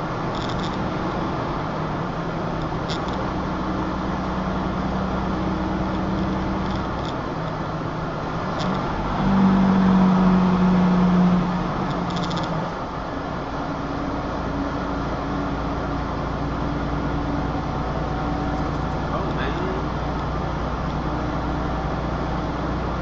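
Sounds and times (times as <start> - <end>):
road noise: 0.0 - 23.0
vehicle engine hum: 0.0 - 23.0.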